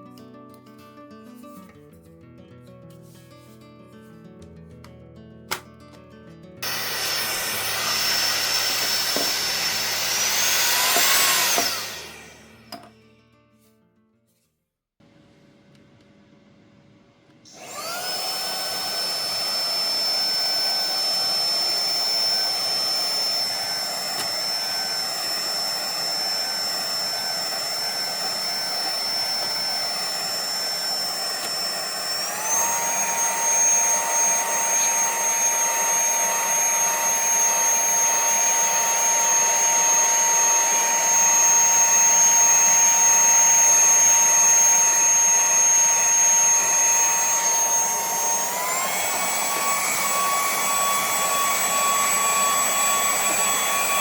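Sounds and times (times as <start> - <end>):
handheld vacuum cleaner whine: 6.6 - 12.9, 17.3 - 54.0.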